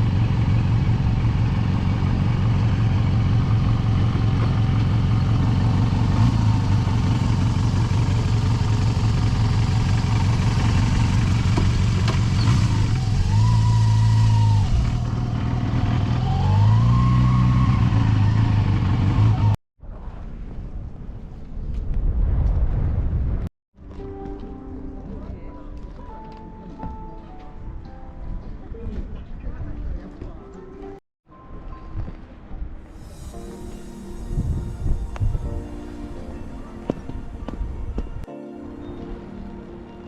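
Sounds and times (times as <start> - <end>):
motorcycle engine running: 0.0 - 19.6.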